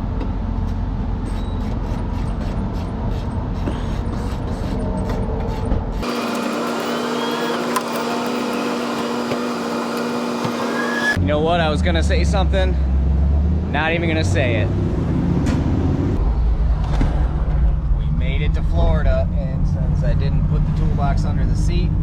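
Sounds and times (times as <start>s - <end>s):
low rumble: 16.2s - 21.0s.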